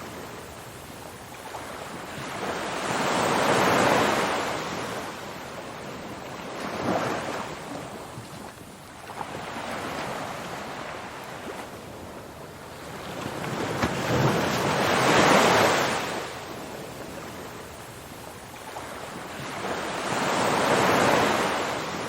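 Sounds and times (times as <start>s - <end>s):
ocean waves surging: 12.9s - 17.9s.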